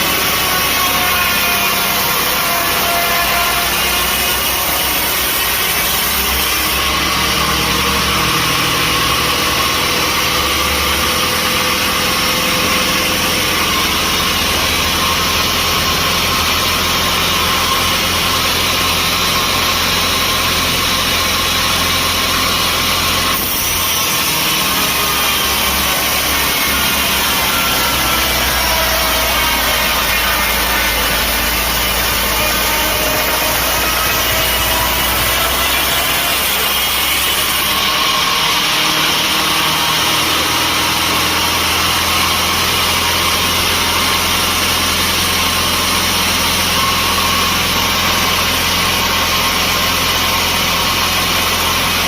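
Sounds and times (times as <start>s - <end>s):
sawmill machinery humming: 0.0s - 52.0s.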